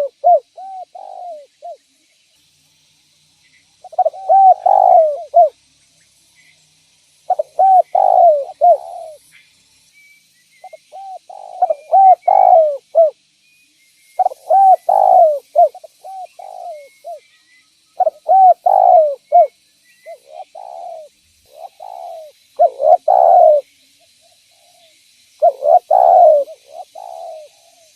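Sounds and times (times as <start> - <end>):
dove cooing: 0.0 - 1.8, 3.8 - 5.6, 7.3 - 9.2, 10.6 - 13.2, 14.2 - 17.2, 18.0 - 19.5, 20.1 - 23.7, 25.4 - 27.9.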